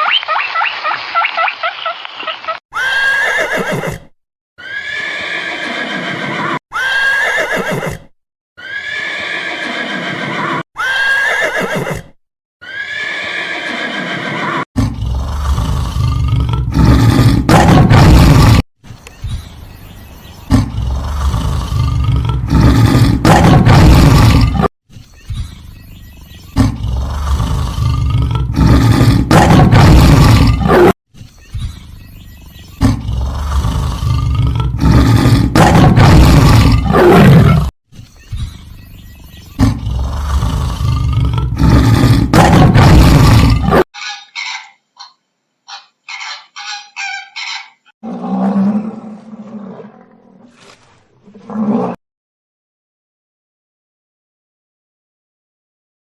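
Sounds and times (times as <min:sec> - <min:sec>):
loud deep animal roars: 0:14.8 - 0:18.6, 0:20.5 - 0:24.7, 0:26.6 - 0:31.0, 0:32.8 - 0:37.7, 0:39.6 - 0:43.8, 0:48.0 - 0:50.6, 0:51.2 - 0:52.0.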